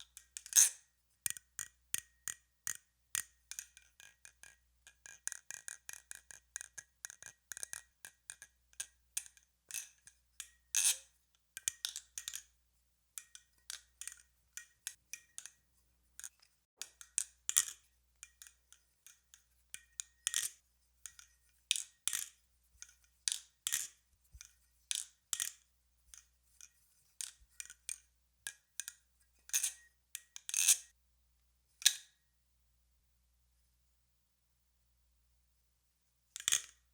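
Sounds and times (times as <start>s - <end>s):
butterfly knife clicking and clacking: 0.4s - 8.5s.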